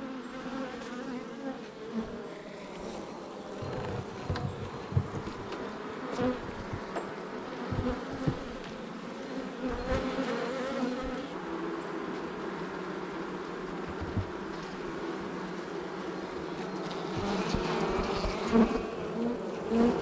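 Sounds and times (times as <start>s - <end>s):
bees buzzing: 0.0s - 20.0s
dull low bumps from hive: 0.8s - 20.0s.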